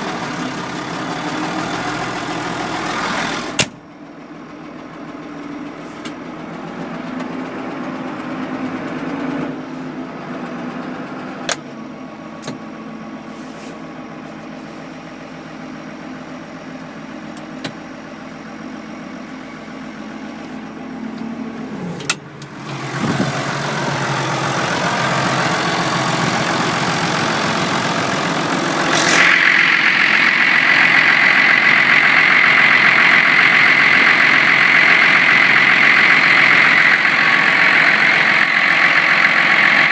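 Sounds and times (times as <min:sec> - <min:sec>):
tractor diesel engine running: 0:00.0 - 0:39.9
high steady whine: 0:19.2 - 0:39.9.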